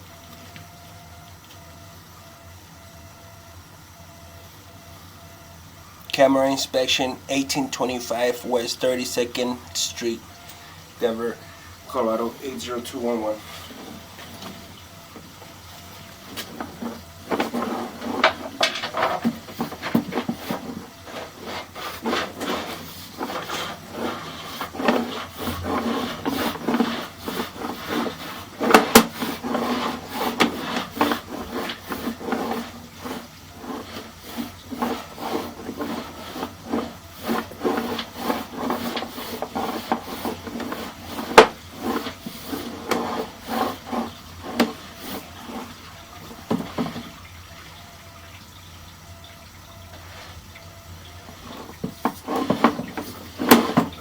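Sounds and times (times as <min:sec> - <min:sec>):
cable scraping in drain pipe: 0:11.9 - 0:47.3, 0:51.1 - 0:54.0.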